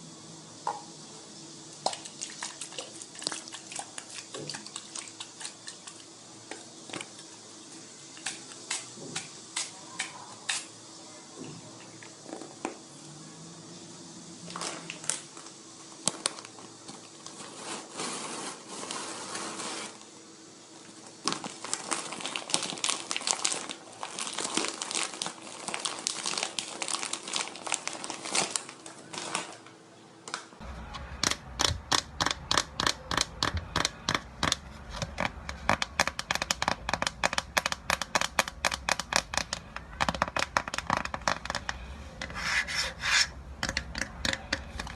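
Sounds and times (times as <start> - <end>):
crinkling and clicking: 31.2 - 42.4.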